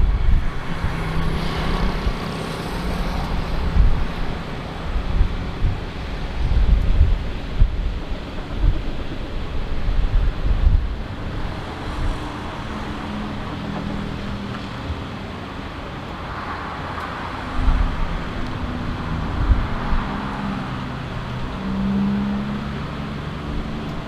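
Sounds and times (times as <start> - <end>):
jet engines running: 0.0 - 24.0
wind buffeting microphone: 0.0 - 24.0.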